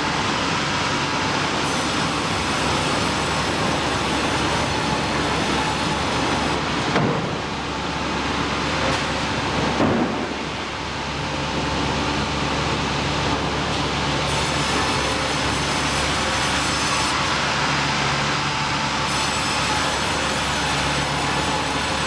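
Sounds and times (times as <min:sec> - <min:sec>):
sawmill machinery running: 0:00.0 - 0:22.0.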